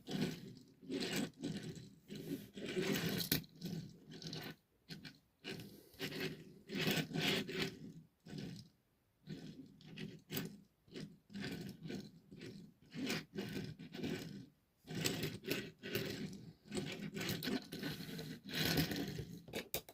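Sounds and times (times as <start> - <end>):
small clicks and knocks: 19.4 - 19.9.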